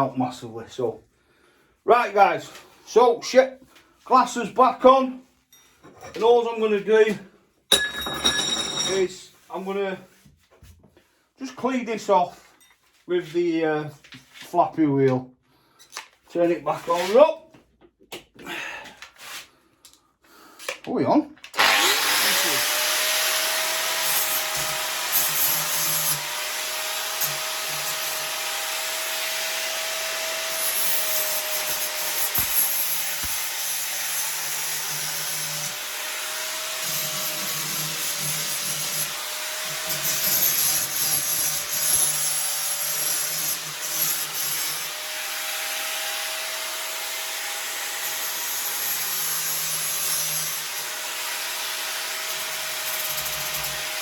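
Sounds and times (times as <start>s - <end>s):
angle grinder grinding metal: 21.6s - 54.0s.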